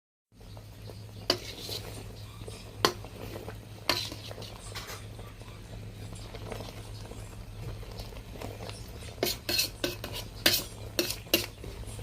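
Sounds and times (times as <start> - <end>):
utensils clinking against cookware: 0.9 - 5.3, 7.9 - 12.0.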